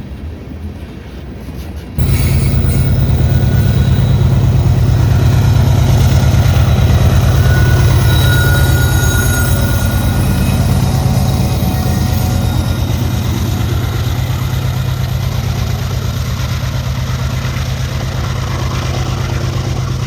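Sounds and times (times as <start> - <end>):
freight train rumbling past: 0.0 - 20.0
high wheel squeal: 2.0 - 20.0.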